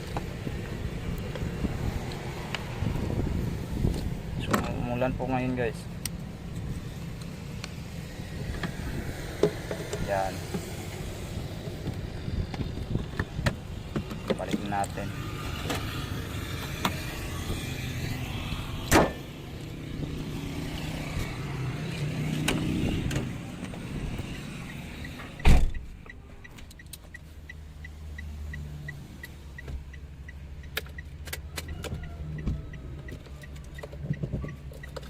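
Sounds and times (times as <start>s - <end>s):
light repeating tick: 25.8s - 35.0s.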